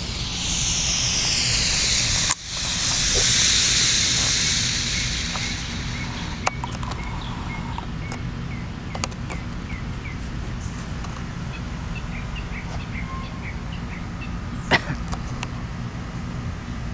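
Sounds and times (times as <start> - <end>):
low rumble: 0.0 - 7.6
sharp click: 0.0 - 7.9
bird chirping: 0.0 - 10.8, 11.5 - 14.7.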